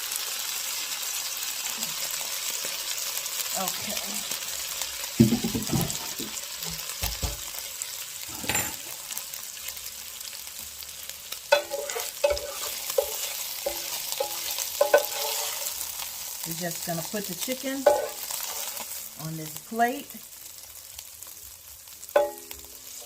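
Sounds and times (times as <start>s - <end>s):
chicken sizzling in fat: 0.0s - 23.0s
utensil scraping a pan: 11.5s - 15.9s, 17.8s - 19.0s.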